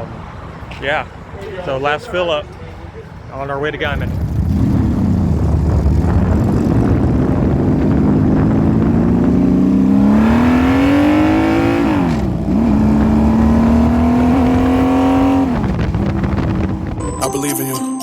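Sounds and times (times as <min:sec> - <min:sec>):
motorcycle engine accelerating: 0:03.9 - 0:17.0.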